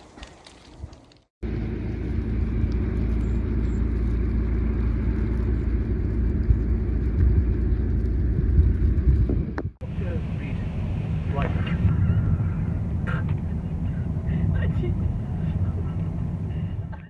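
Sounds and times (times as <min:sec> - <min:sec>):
vehicle low rumble: 0:00.0 - 0:17.0.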